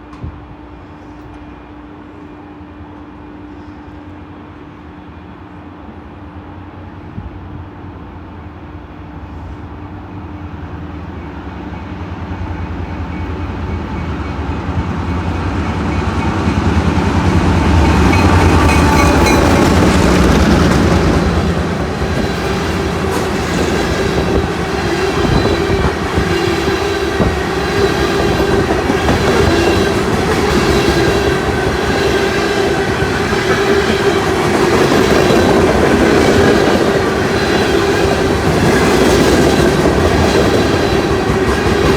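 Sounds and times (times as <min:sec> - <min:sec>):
train wheel clatter and rumble: 0:09.2 - 0:41.9.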